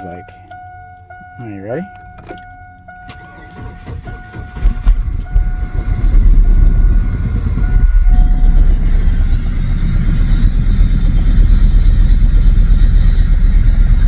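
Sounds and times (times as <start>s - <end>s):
engine cranking and starting: 2.0s - 14.0s
engine running rough: 2.4s - 14.0s.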